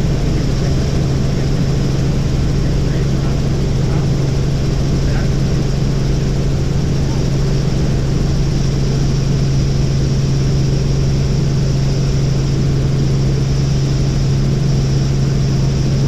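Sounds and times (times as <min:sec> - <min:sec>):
helicopter engine and rotor drone: 0:00.0 - 0:16.0.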